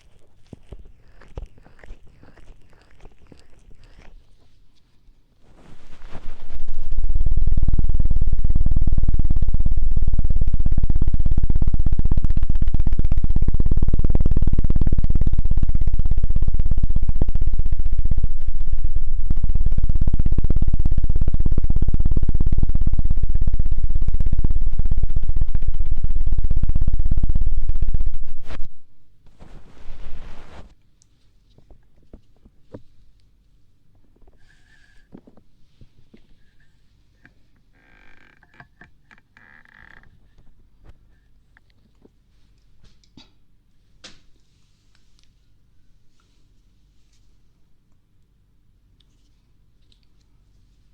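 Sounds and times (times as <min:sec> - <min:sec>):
soft rustle: 0:00.0 - 0:06.8, 0:28.3 - 0:33.6, 0:44.3 - 0:47.6.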